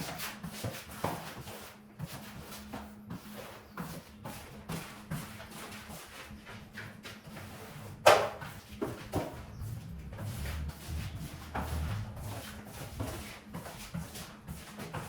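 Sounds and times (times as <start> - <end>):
low rumble: 8.9 - 13.3.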